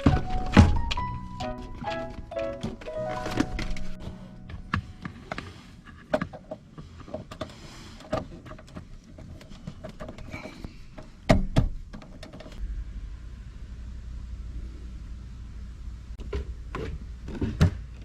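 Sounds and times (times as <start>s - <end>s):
heavy thumps: 0.0s - 5.0s
handling clicks and knocks: 0.0s - 12.6s
steady low hum: 12.6s - 16.7s.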